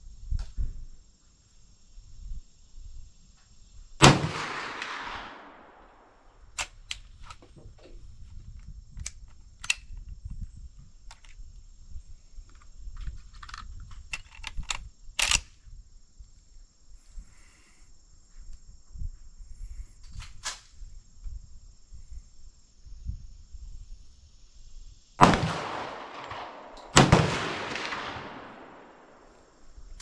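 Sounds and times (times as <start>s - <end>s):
gunshot with rolling echo: 4.0s - 6.2s, 25.2s - 29.5s.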